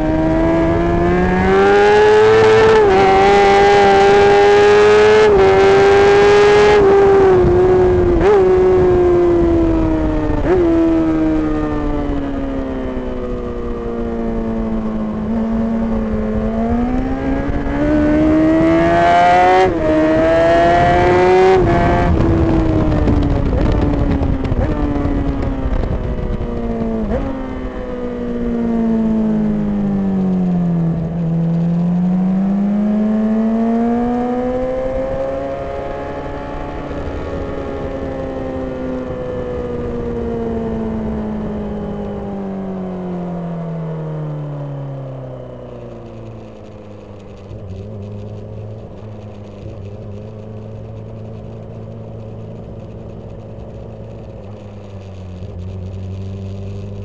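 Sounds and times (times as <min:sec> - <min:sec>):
wind rush: 0:00.0 - 0:28.4
motorcycle engine revving: 0:00.0 - 0:57.0.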